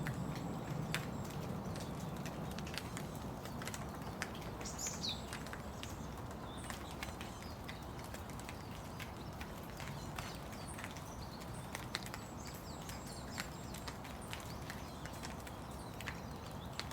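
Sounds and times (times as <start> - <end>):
steady rain: 0.0 - 16.9.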